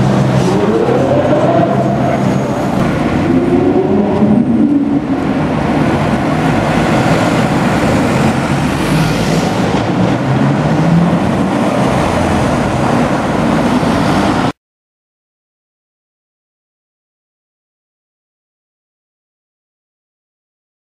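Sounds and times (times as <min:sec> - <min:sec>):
car engine driving past: 0:00.0 - 0:14.5.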